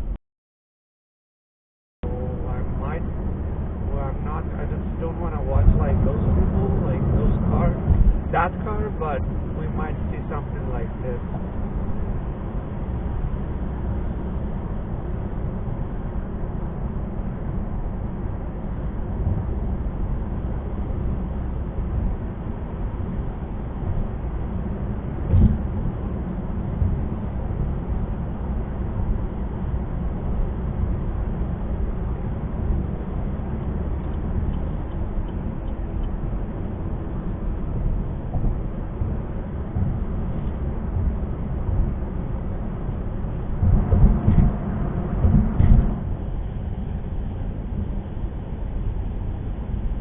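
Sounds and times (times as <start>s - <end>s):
car road and engine rumble: 2.0s - 50.0s
thump: 25.3s - 25.7s, 45.2s - 46.0s.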